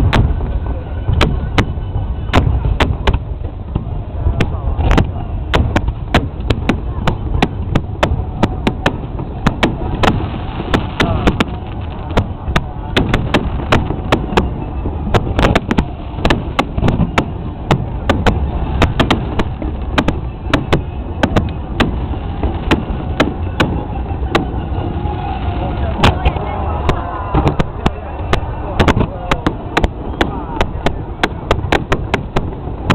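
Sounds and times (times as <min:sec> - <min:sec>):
constant low rumble: 0:00.0 - 0:32.9
fireworks bangs: 0:00.0 - 0:32.9.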